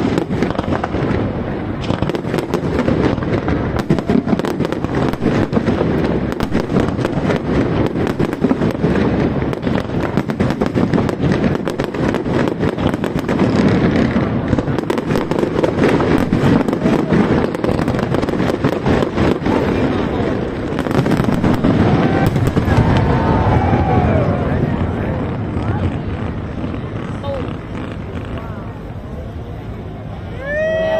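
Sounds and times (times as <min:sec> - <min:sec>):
fireworks crackling and popping: 0:00.0 - 0:30.9.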